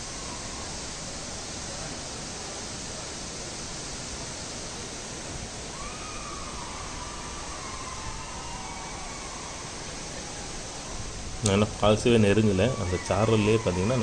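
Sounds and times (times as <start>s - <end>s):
waterfall rushing: 0.0s - 14.0s
faint drawn-out call: 12.3s - 14.0s.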